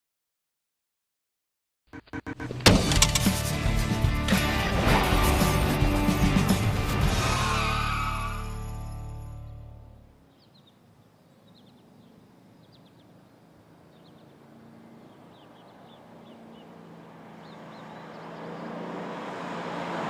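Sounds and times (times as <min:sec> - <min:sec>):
birds chirping: 0:09.4 - 0:19.0
car engine approaching: 0:11.6 - 0:20.0.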